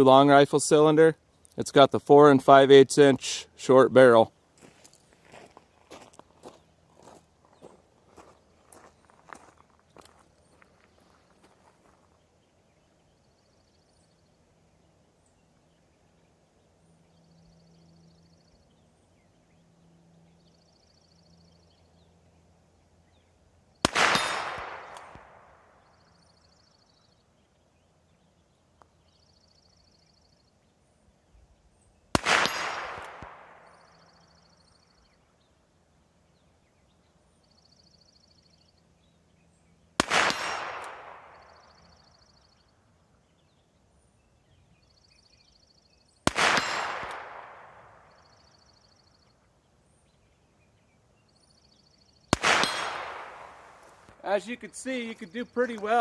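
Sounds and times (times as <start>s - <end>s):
revolver gunshots with echo: 23.8s - 26.0s, 32.1s - 34.2s, 40.0s - 42.1s, 46.2s - 48.4s, 52.3s - 54.1s
bullet striking steel target: 23.9s - 25.6s, 32.2s - 33.9s, 40.0s - 41.8s, 46.3s - 48.2s, 52.4s - 54.0s.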